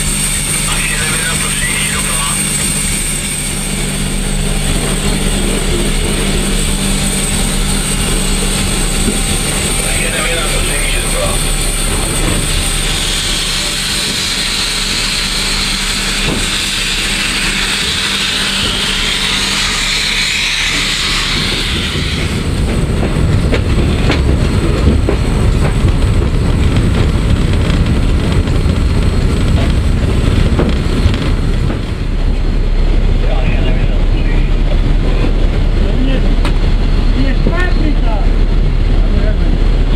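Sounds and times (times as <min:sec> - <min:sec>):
steady steam hiss: 0:00.0 - 0:22.6
steam locomotive rumbling: 0:00.0 - 0:39.9.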